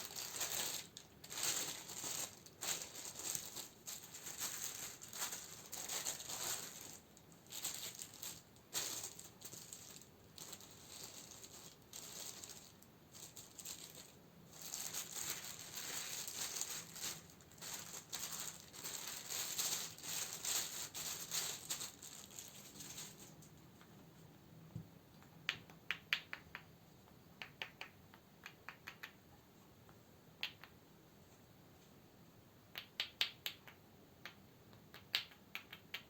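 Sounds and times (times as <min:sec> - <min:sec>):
packaging crinkling and rattling: 0:00.0 - 0:23.6.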